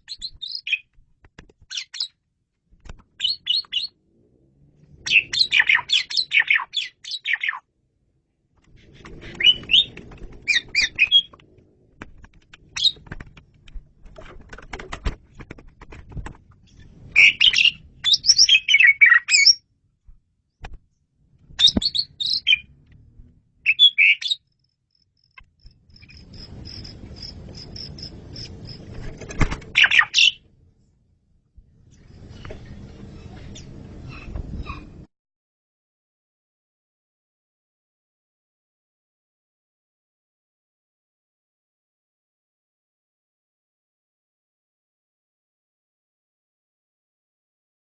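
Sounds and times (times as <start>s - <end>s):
starling singing: 5.0s - 7.6s, 9.3s - 11.4s, 17.2s - 19.6s, 21.6s - 22.7s, 23.7s - 24.5s.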